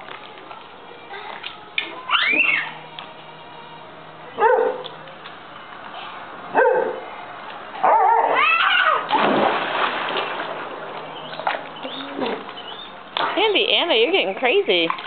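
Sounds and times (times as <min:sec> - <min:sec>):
water splashing in a pool: 0:08.3 - 0:13.4, 0:14.6 - 0:15.0.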